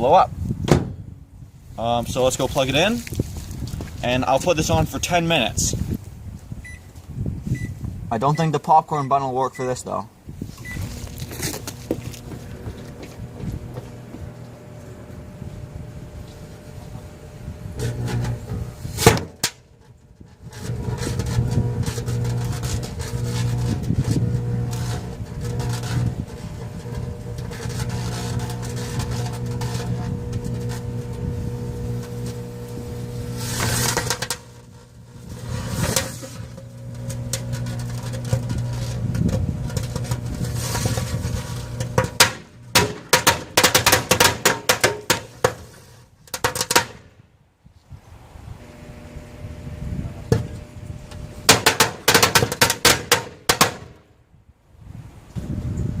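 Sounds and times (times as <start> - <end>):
microwave oven humming: 10.7 - 18.9, 20.5 - 43.1, 48.6 - 51.5
firecrackers banging: 20.7 - 45.8, 51.4 - 54.0.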